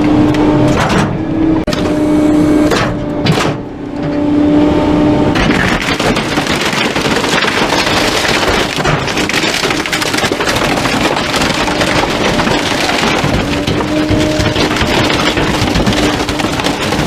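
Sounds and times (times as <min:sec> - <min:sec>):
wood cracking and splintering: 0:05.4 - 0:17.0.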